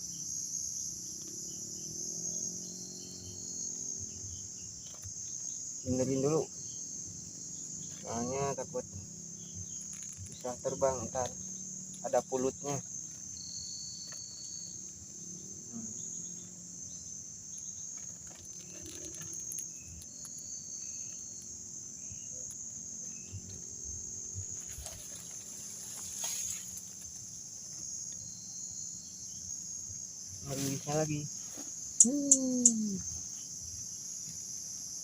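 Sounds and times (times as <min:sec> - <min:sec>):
insects chorus: 0:00.0 - 0:35.0
rustling: 0:17.9 - 0:20.3, 0:24.4 - 0:27.9.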